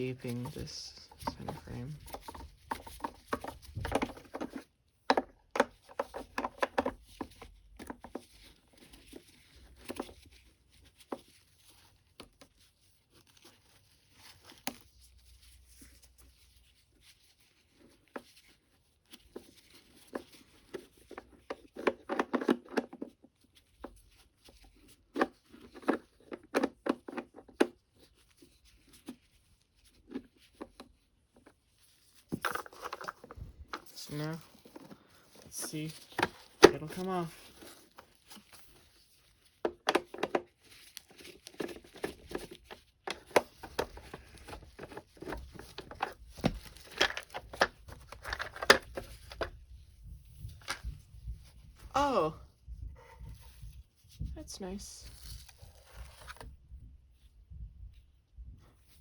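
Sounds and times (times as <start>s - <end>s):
gloved hands rustling: 0.0s - 22.0s, 27.8s - 56.7s.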